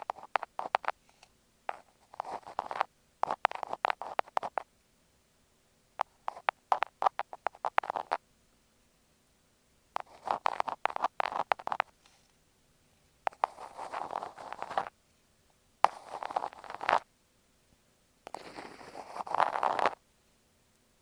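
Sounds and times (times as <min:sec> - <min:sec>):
thumbtacks scratching on microphone: 0:00.0 - 0:01.0, 0:01.7 - 0:04.6, 0:06.0 - 0:08.2, 0:10.0 - 0:11.9, 0:13.3 - 0:14.9, 0:15.9 - 0:17.0, 0:18.3 - 0:20.0.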